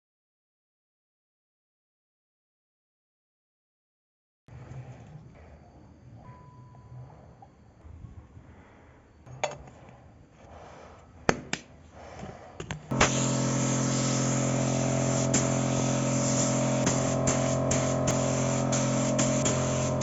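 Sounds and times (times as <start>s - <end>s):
power tool motor humming: 12.9s - 20.0s.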